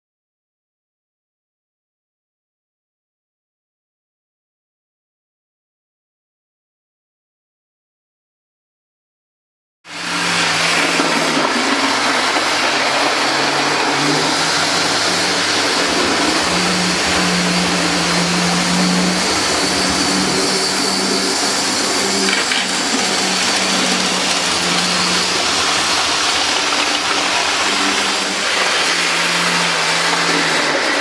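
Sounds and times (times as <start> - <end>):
diesel locomotive engine running: 9.9 - 31.0.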